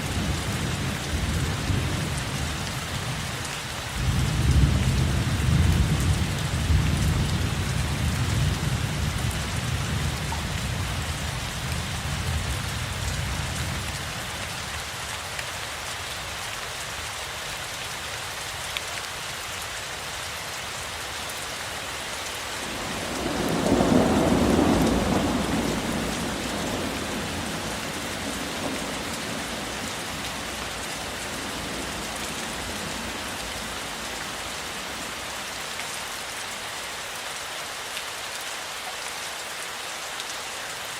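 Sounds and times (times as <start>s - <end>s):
steady rain: 0.0s - 40.9s
thunder rumbling: 22.6s - 33.3s.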